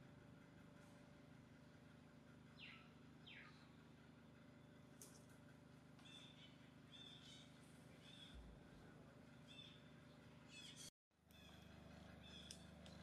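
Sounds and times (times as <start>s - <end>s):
bird calls: 2.5s - 3.8s, 6.0s - 8.6s, 9.4s - 11.6s, 12.2s - 13.0s.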